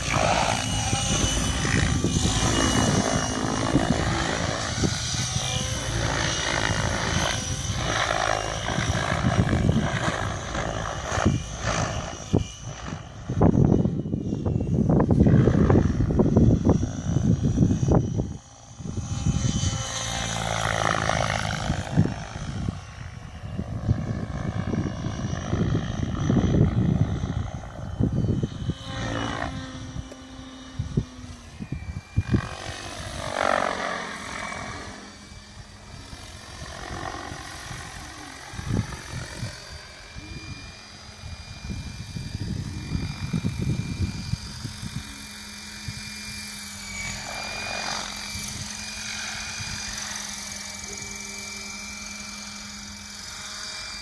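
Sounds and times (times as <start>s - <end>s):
gusty low rumble: 0.0s - 19.8s, 20.7s - 30.0s
helicopter rotor blade noise: 0.0s - 54.0s
motor and gear whine: 0.0s - 54.0s.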